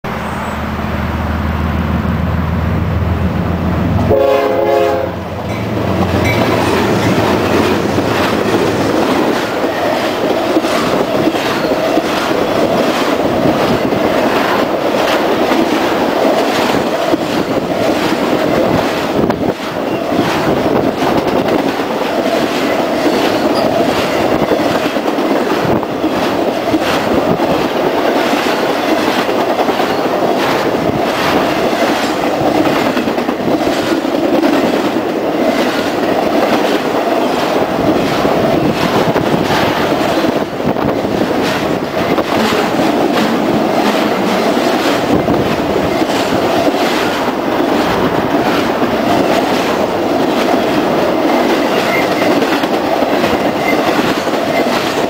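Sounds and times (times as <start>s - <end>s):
diesel locomotive rumble: 0.0s - 55.0s
train horn: 3.9s - 6.6s
train wheels clacking over rail joints: 4.0s - 55.0s.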